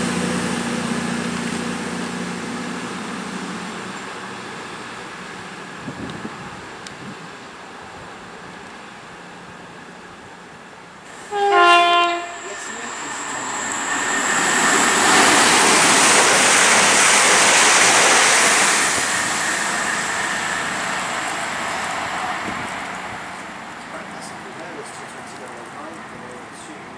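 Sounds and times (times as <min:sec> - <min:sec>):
train rushing past: 0:00.0 - 0:26.9
two-tone train horn: 0:11.1 - 0:14.3.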